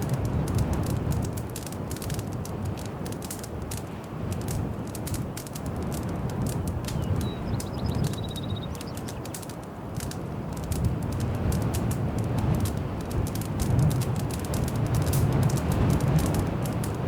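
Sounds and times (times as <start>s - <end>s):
wood fire crackling and popping: 0.0s - 17.0s
bird chirping trill: 6.9s - 9.4s.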